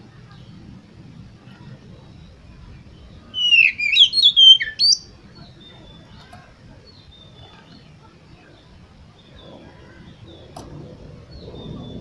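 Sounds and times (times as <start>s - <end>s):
bird singing whistled phrase: 3.3s - 5.1s.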